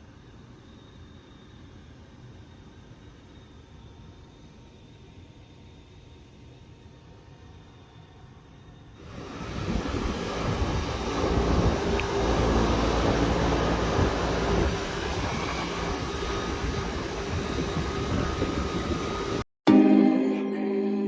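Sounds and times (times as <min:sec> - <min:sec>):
gas furnace rushing and humming: 0:09.0 - 0:19.4.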